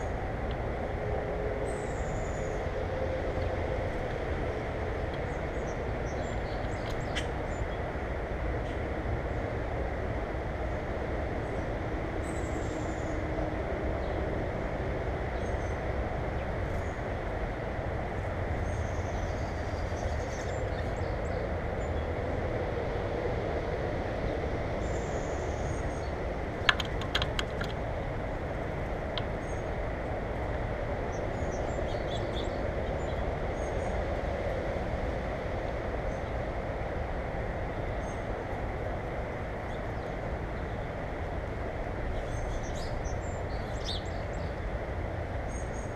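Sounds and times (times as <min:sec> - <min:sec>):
sharp clicks: 0:26.6 - 0:27.8.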